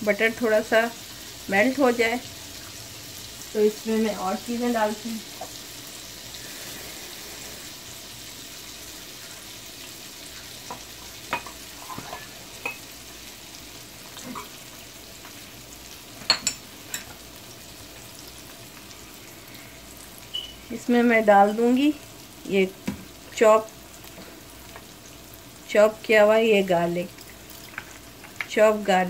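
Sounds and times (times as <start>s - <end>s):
chicken frying in hot oil: 0.0s - 29.0s
oil popping and crackling: 27.1s - 28.6s.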